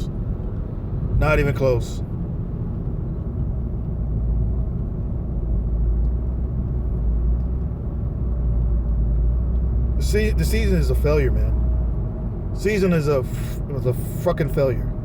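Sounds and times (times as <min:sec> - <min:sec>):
vehicle road and engine rumble: 0:00.0 - 0:15.0.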